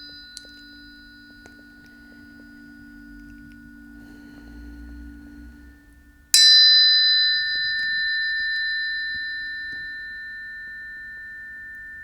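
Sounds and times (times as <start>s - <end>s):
low ringing tuning fork: 0.0s - 12.0s
tuning fork struck ringing high: 0.0s - 12.0s.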